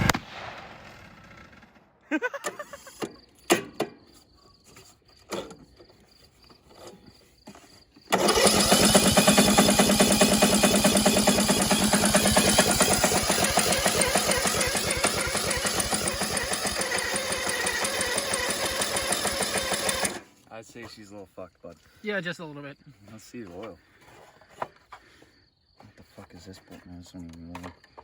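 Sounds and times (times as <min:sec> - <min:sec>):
lawn mower engine running: 0:08.1 - 0:20.3.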